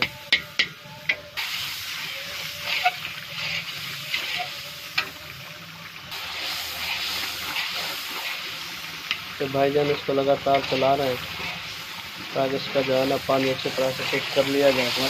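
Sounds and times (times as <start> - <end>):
masala sizzling in a pan: 0.0 - 15.0
metal spatula scraping a pan: 1.9 - 5.2, 6.2 - 9.2, 10.5 - 11.9, 12.5 - 15.0.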